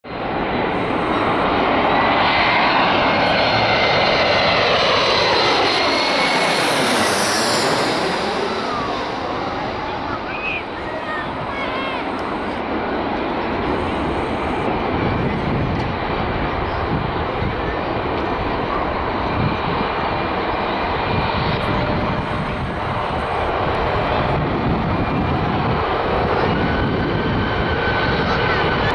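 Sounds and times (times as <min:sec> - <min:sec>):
jet airliner passing: 0:00.1 - 0:28.9
faint thin whine: 0:00.4 - 0:19.0.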